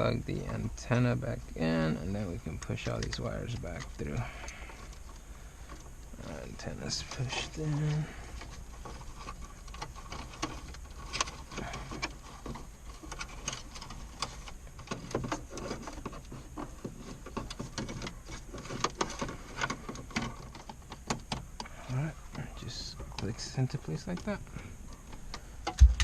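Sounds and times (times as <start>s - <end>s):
sharp knocks: 25.7s - 26.0s.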